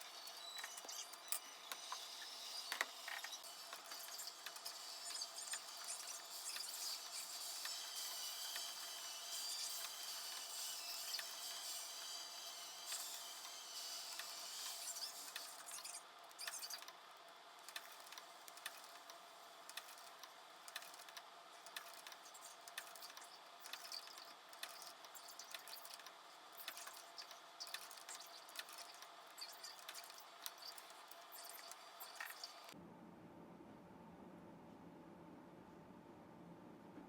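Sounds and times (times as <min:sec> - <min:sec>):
small clicks and taps: 0:17.6 - 0:32.5.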